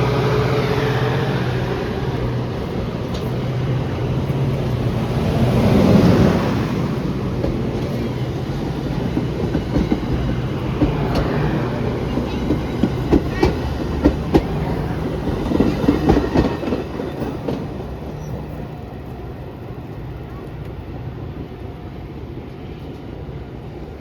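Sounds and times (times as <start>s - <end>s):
train rumbling past: 0.0s - 24.0s
train wheels clacking over rail joints: 7.3s - 17.8s.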